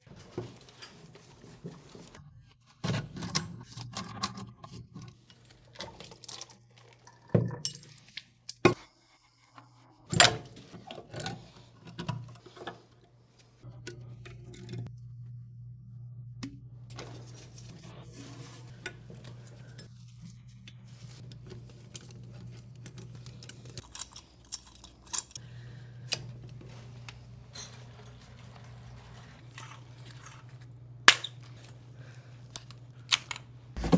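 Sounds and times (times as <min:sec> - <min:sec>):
low steady hum: 0:13.6 - 0:33.9.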